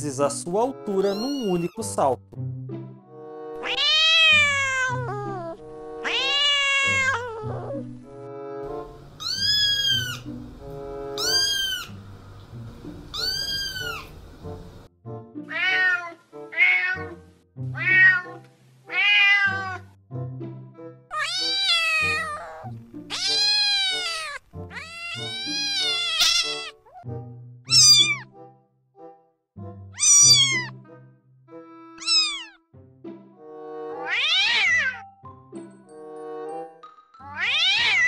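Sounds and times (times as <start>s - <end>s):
background music: 0.0s - 38.0s
cats meowing: 1.0s - 1.9s, 3.6s - 7.8s, 9.2s - 10.4s, 11.1s - 12.0s, 13.1s - 14.2s, 15.5s - 17.2s, 17.8s - 19.9s, 21.1s - 27.1s, 27.7s - 28.3s, 30.0s - 30.8s, 32.0s - 32.6s, 34.0s - 35.0s, 37.2s - 38.0s.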